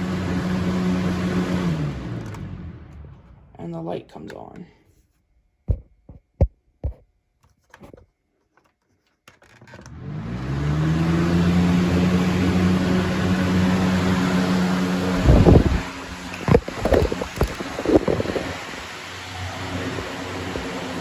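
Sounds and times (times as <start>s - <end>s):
fan motor hum: 0.0s - 4.3s, 9.8s - 21.0s
rush of moving air: 14.6s - 18.9s.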